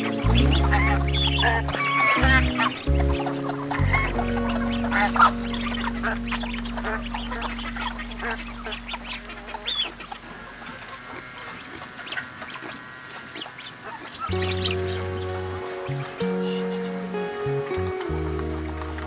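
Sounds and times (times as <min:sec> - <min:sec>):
background music: 0:00.0 - 0:10.0, 0:14.3 - 0:19.0
chickens clucking: 0:00.0 - 0:17.1.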